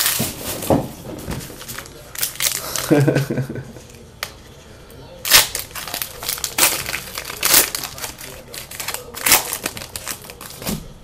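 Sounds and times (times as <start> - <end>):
plastic wrapper crinkling: 0.0 - 3.0, 5.2 - 10.8.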